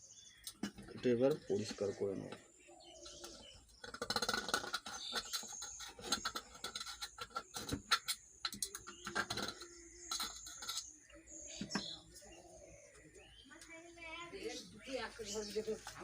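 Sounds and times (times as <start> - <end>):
scraping and clicking: 3.0 - 12.0.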